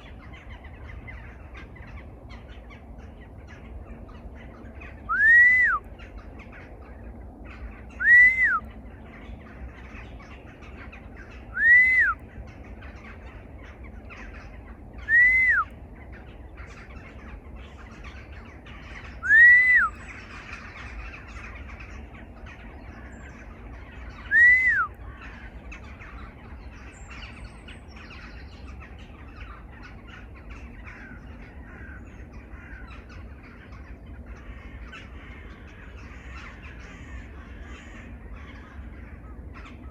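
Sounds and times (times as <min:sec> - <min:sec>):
bird call rising and falling: 0:00.0 - 0:31.3
small birds chirping: 0:00.0 - 0:39.9.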